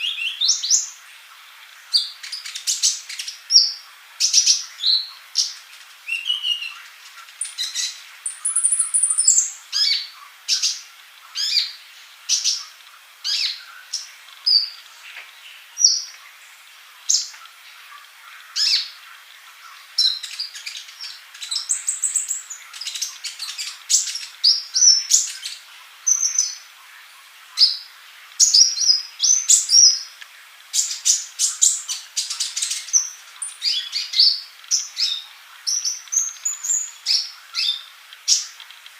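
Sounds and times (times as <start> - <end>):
bird singing chirps and trills: 0.0 - 1.2, 1.9 - 38.6
sharp high bird whistles: 7.4 - 10.0.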